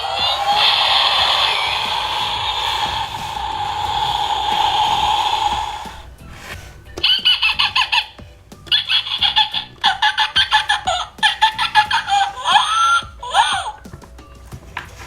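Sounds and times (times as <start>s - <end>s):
robotic toy chirps and squawks: 0.0s - 6.1s, 7.0s - 13.8s.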